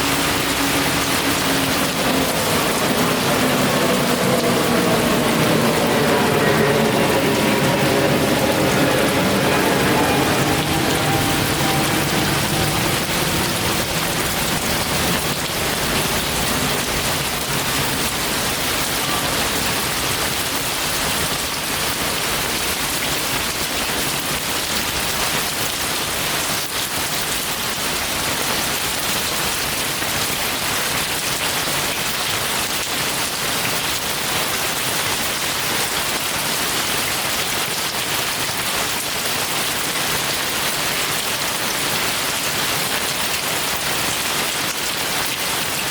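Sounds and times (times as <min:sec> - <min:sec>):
heavy steady rainfall: 0:00.0 - 0:45.9.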